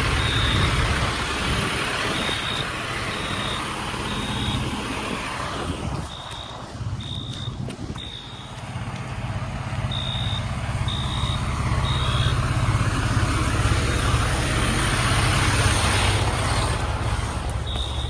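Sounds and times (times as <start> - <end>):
diesel engine idling: 0.0 - 18.0
short high beeps: 9.9 - 12.4, 17.7 - 18.0.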